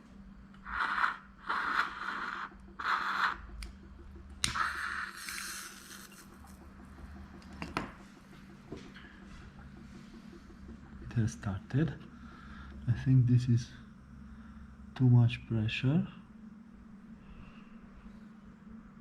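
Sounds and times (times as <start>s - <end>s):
lighter scraping: 4.4s - 6.3s.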